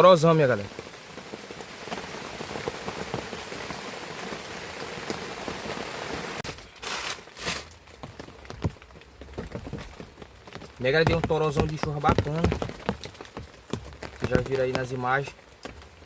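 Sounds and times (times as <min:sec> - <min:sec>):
heavy rain pouring: 0:00.0 - 0:16.0
water dripping: 0:07.7 - 0:16.0.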